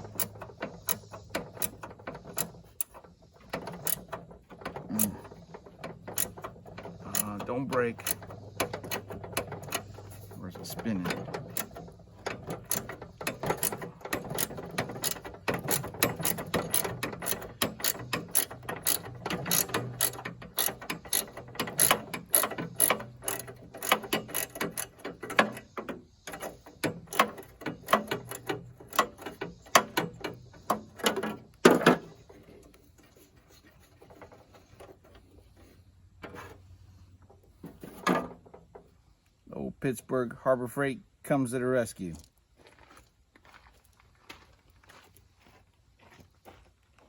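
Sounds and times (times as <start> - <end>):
ratchet wrench clicking: 0.0 - 4.2, 4.8 - 10.2, 10.8 - 31.1.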